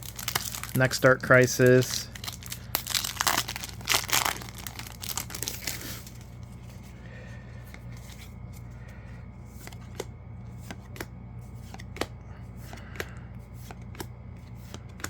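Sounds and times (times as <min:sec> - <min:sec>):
foil wrapper tearing and crinkling: 0:00.0 - 0:06.2
cards being handled: 0:00.0 - 0:07.0, 0:07.6 - 0:08.7, 0:09.4 - 0:15.0.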